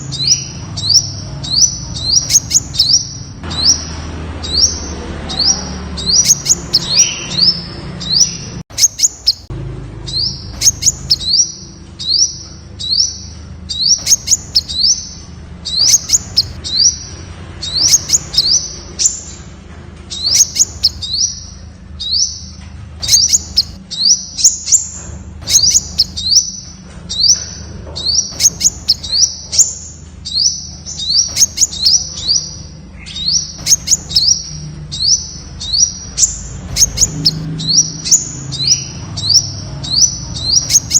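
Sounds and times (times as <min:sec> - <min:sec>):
bird chirping high: 0:00.0 - 0:40.9.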